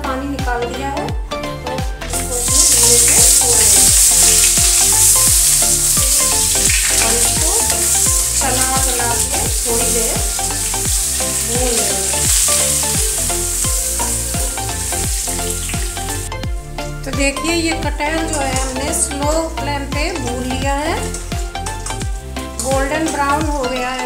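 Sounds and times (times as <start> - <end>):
background music with a beat: 0.1 - 24.0
food sizzling in hot oil: 2.1 - 16.8, 18.0 - 24.0
spoon stirring: 2.2 - 16.3.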